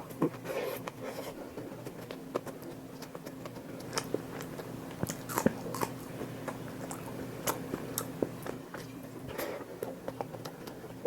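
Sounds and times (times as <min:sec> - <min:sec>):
person chewing and biting: 0:00.0 - 0:11.0
steady low hum: 0:00.0 - 0:11.0.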